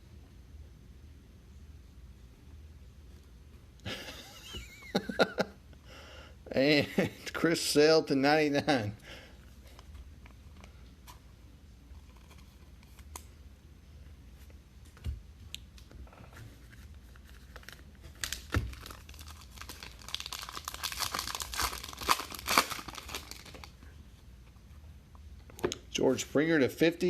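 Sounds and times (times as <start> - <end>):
plastic wrapping crackling: 16.6 - 23.8.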